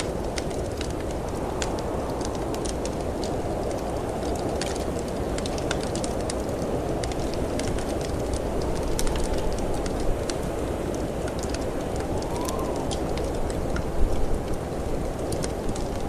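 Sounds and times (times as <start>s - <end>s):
wood fire crackling: 0.0s - 16.0s
snowstorm wind rushing: 0.3s - 16.0s.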